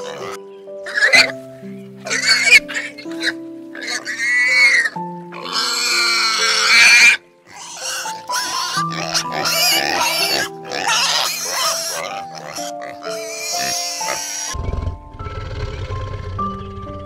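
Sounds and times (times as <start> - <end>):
pigs squealing: 0.0 - 1.4, 2.0 - 16.5
background music: 0.0 - 17.0.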